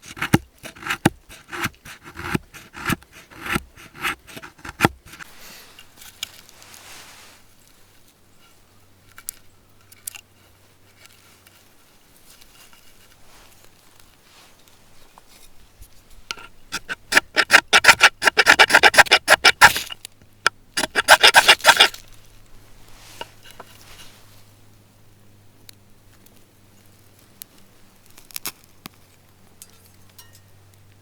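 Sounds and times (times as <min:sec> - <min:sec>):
brief hiss: 0:06.5 - 0:07.6.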